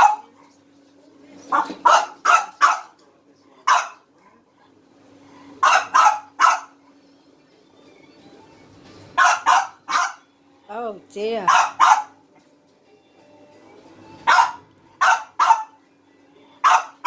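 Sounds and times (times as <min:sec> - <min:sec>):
dog barking: 0:00.0 - 0:00.4, 0:01.5 - 0:03.0, 0:03.6 - 0:04.1, 0:05.6 - 0:06.8, 0:09.2 - 0:10.3, 0:11.5 - 0:12.2, 0:14.2 - 0:15.8, 0:16.6 - 0:17.0.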